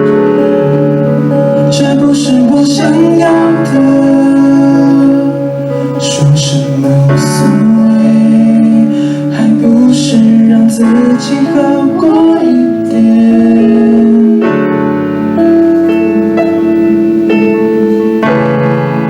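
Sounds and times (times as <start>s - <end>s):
person singing: 0.0s - 14.8s
keyboard melody: 0.0s - 19.0s
live band playing slow song: 0.0s - 19.0s.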